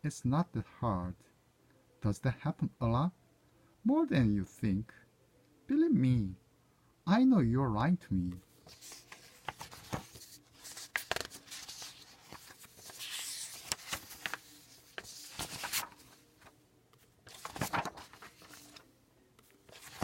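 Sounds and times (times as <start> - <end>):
paper rustling: 8.5 - 18.8, 19.4 - 20.0.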